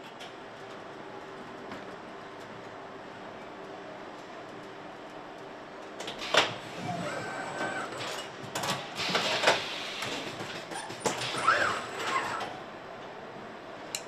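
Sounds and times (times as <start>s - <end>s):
steady machinery hiss: 6.1s - 10.5s
short whirring tones: 11.3s - 12.6s.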